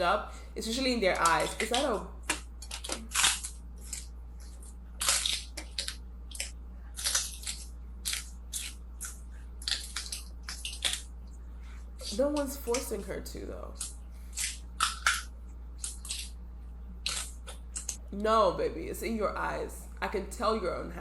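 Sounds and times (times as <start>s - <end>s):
crunchy food being chewed: 1.1s - 12.8s, 13.7s - 18.1s.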